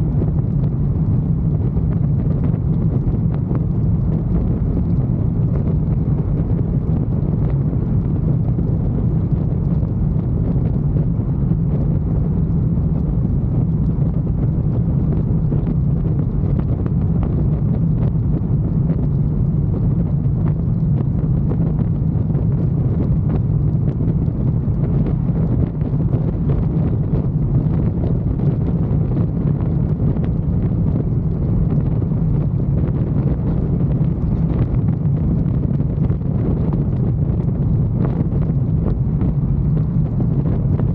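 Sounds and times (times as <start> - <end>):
motorcycle engine drone: 0.0 - 40.9
wind rushing over microphone: 0.0 - 40.9.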